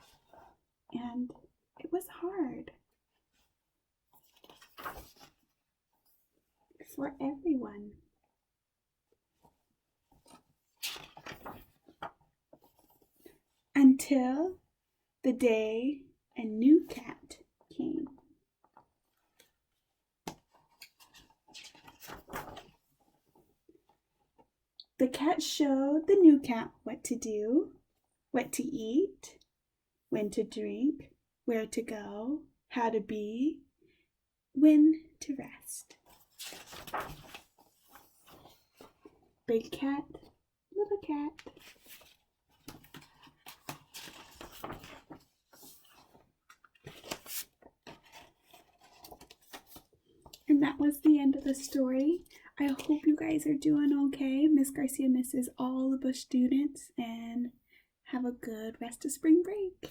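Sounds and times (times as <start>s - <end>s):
paper rustling page turn: 4.1s - 5.5s, 10.1s - 13.2s, 20.3s - 22.9s, 36.0s - 39.2s, 41.3s - 53.2s.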